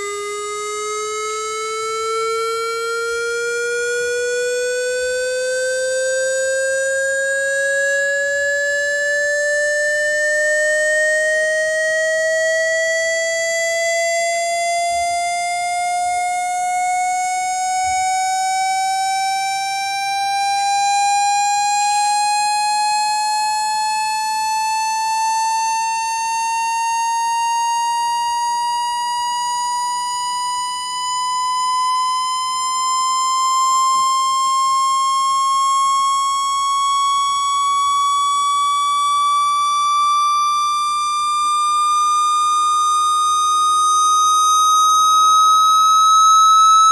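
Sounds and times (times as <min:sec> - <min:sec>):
buzzy rising test tone: 0:38.6 - 0:46.9.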